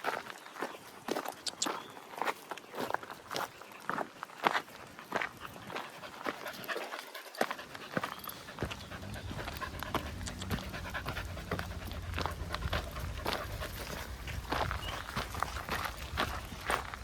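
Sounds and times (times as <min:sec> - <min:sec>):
quick footfalls on trail: 0:00.1 - 0:17.0
dog panting: 0:05.1 - 0:17.0
low rumble: 0:08.5 - 0:16.3.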